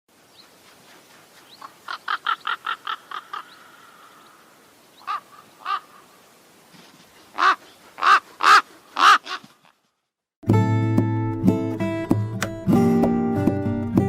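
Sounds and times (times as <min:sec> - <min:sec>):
crow cawing: 0:01.9 - 0:06.2, 0:07.3 - 0:09.7.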